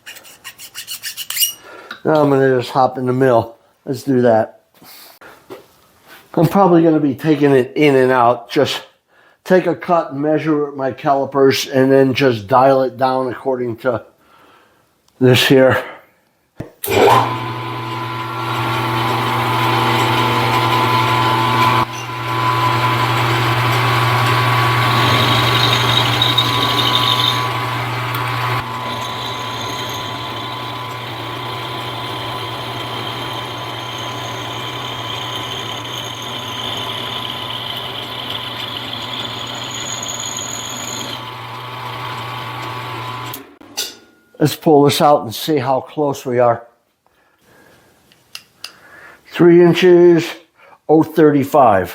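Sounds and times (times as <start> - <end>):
cutter cutting metal: 16.9 - 43.6
milling machine motor hum: 16.9 - 43.6.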